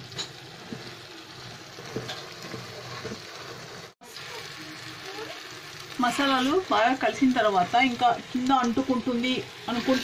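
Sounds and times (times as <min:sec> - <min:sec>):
vegetables sizzling in a pan: 0:00.0 - 0:10.0
wooden spatula scraping a pan: 0:01.8 - 0:04.0, 0:09.6 - 0:10.0.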